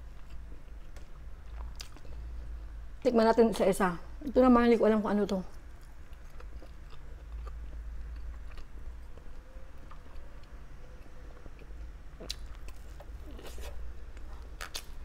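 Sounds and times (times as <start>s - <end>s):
person chewing meat: 0.0s - 2.4s, 5.8s - 15.0s
low steady hum: 0.0s - 15.0s.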